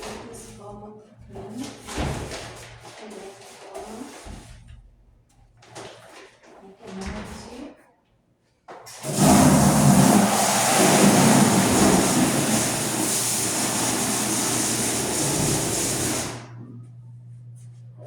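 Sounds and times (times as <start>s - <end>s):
water rushing into washing machine: 8.9s - 16.6s
low steady hum: 16.4s - 18.0s.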